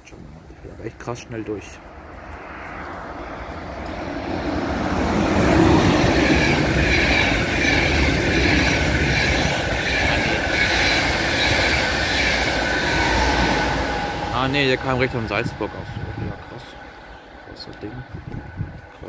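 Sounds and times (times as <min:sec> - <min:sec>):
train wheels rushing on rails: 0:00.0 - 0:19.0
high wavering squeal: 0:05.3 - 0:17.3.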